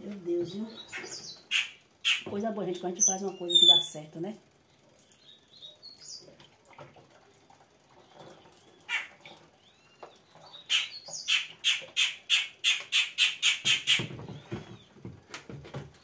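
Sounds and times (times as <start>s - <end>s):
bird squawking harshly: 0.9s - 2.3s
soft bird chirps: 3.0s - 4.0s.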